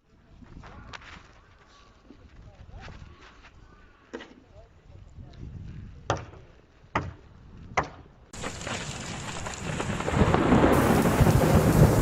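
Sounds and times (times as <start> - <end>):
wind buffeting microphone: 4.8 - 6.2, 9.6 - 12.0.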